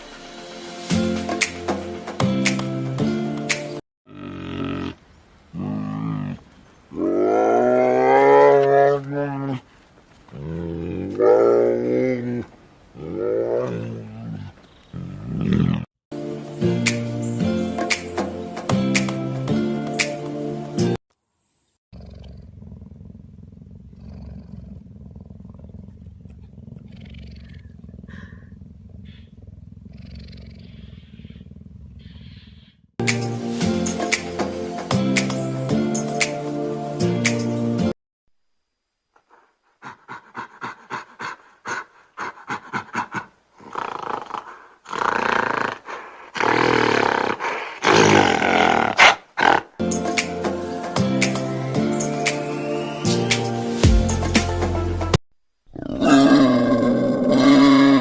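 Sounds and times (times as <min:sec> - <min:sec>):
animal calling: 0:04.1 - 0:09.6
cat purring: 0:22.0 - 0:32.0.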